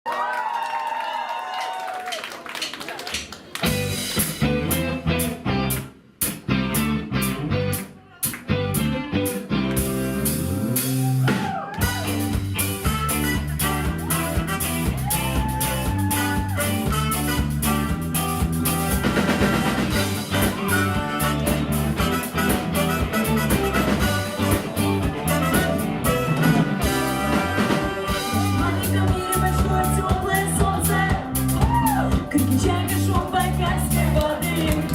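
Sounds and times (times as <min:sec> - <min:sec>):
drum kit: 0:03.6 - 0:34.9
live rock band playing: 0:03.6 - 0:34.9
guitar notes: 0:04.2 - 0:11.0, 0:16.0 - 0:30.4.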